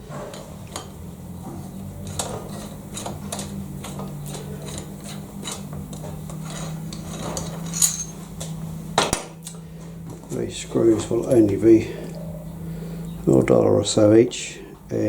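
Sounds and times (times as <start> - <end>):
small steel parts clinking: 6.9 - 8.5.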